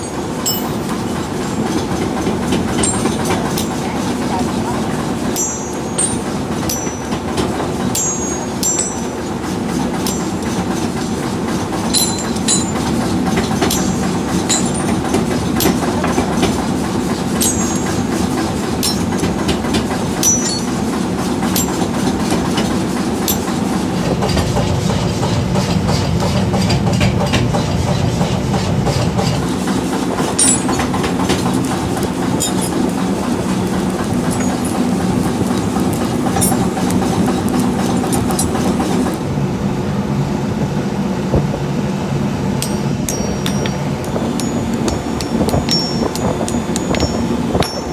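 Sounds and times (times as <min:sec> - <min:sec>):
metallic clinks: 0:00.0 - 0:02.0, 0:02.7 - 0:04.0, 0:05.3 - 0:11.1, 0:11.8 - 0:23.7, 0:30.2 - 0:39.2, 0:42.6 - 0:47.9
metal parts pinging: 0:00.0 - 0:24.4, 0:29.4 - 0:39.2, 0:42.6 - 0:47.9
workshop machinery humming: 0:00.0 - 0:47.9.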